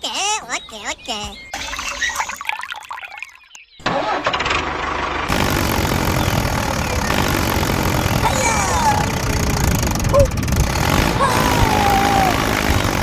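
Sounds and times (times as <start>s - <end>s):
small engine running: 3.8s - 13.0s.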